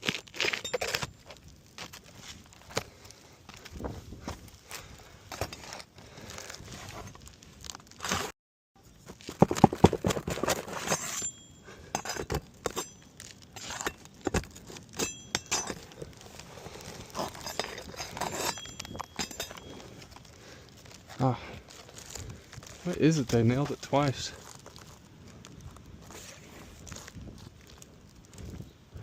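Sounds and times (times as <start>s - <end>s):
metal tool scraping shingles: 0.0s - 1.4s, 9.4s - 20.4s.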